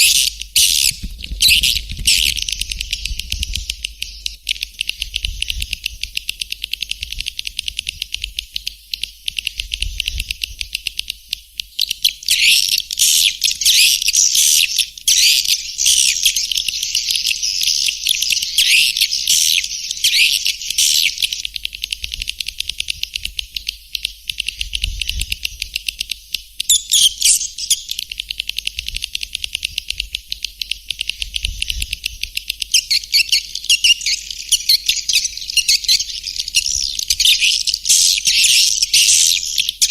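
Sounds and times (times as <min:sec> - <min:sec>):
swiftlets twittering chirps: 0:11.8 - 0:21.5, 0:26.6 - 0:28.6, 0:32.4 - 0:39.9.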